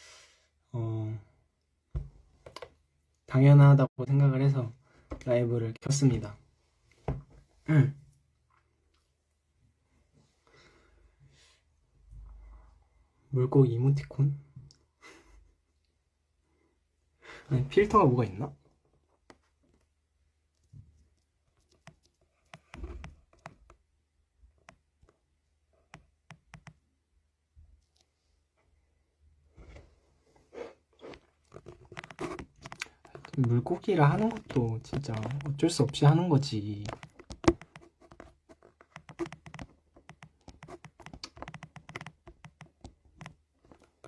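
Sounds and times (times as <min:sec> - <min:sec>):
fingers tapping on phone: 0:25.9 - 0:26.8, 0:36.8 - 0:43.4
handling noise taps and clicks: 0:31.6 - 0:44.0.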